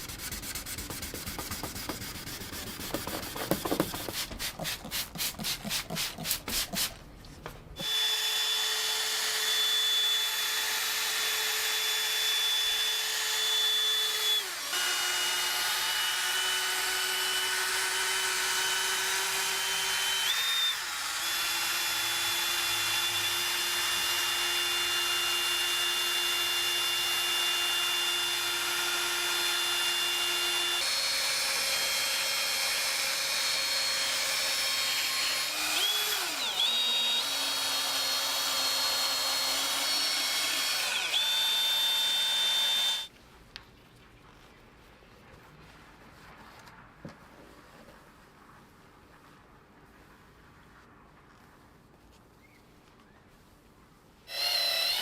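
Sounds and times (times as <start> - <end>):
power tool motor whining: 7.8 - 43.1, 54.3 - 55.0.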